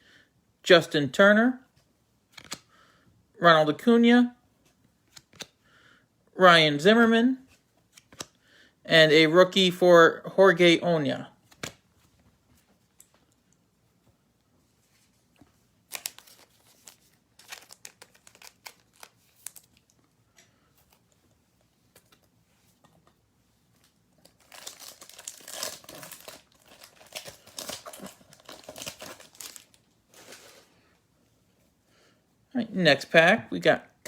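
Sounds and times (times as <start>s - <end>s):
wrapper crinkling and tearing: 15.9s - 20.0s, 24.2s - 30.7s.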